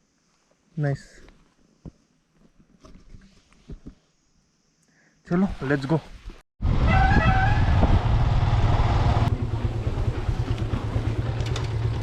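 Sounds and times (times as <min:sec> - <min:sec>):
wind noise: 0:05.5 - 0:09.4
motorcycle engine rumble: 0:06.6 - 0:12.0.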